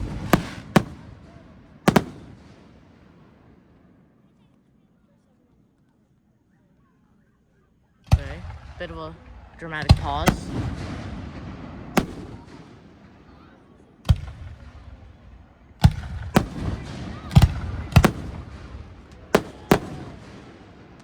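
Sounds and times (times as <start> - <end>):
firework shells bursting: 0.0 - 1.2, 1.9 - 2.5, 17.9 - 20.2.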